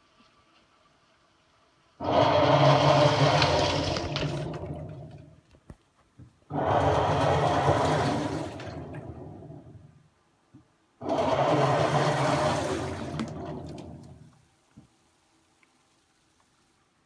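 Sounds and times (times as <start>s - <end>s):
washing machine motor hum: 2.0s - 5.4s, 6.5s - 10.0s, 11.0s - 14.4s
water churning: 2.0s - 5.5s, 6.5s - 10.1s, 11.0s - 14.4s.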